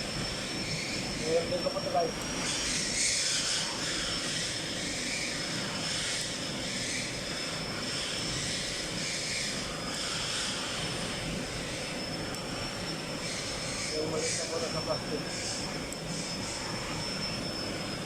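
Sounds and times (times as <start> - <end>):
machine running with high whine: 0.0 - 18.0.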